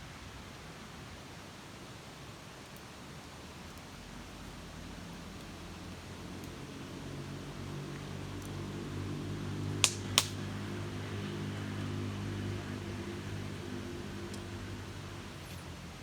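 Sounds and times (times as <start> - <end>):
sharp clicks: 9.8 - 10.4.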